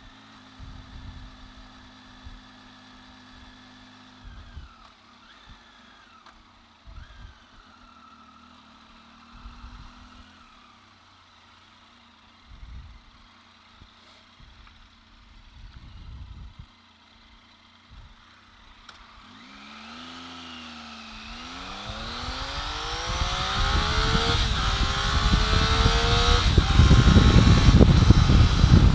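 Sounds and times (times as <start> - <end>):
motorcycle engine accelerating: 0.0 - 28.9
wind noise: 15.6 - 16.7, 21.3 - 28.9.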